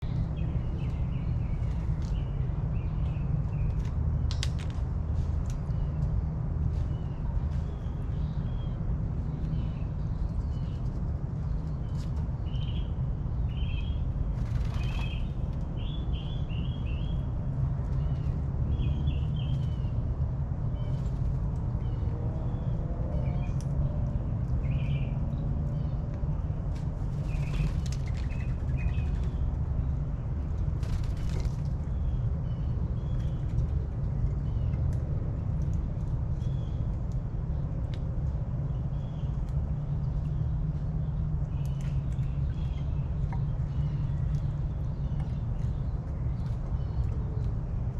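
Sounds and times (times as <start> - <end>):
distant traffic rumble: 0.0 - 47.9
birds chirping: 6.7 - 20.0, 27.1 - 37.6.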